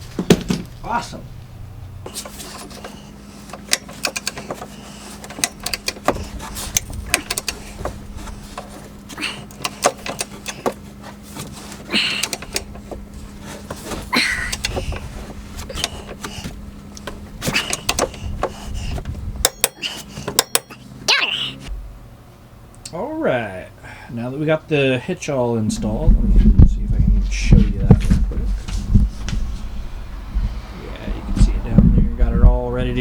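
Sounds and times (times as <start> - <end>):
steady low hum: 0.0 - 33.0
hand tools clicking on metal: 2.1 - 10.8, 11.9 - 12.9, 14.2 - 18.7, 19.4 - 20.9.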